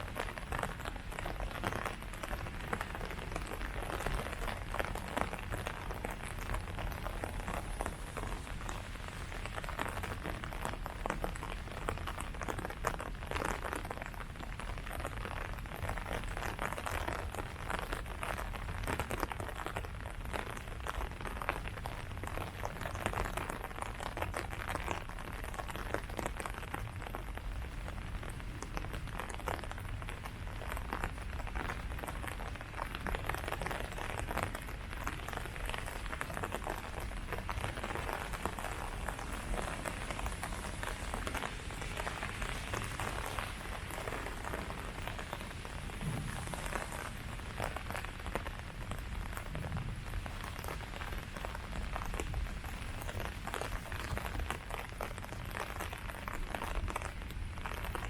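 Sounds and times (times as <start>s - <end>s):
steady low rumble: 0.0s - 13.4s, 29.8s - 54.7s
rain falling on leaves: 0.0s - 58.0s.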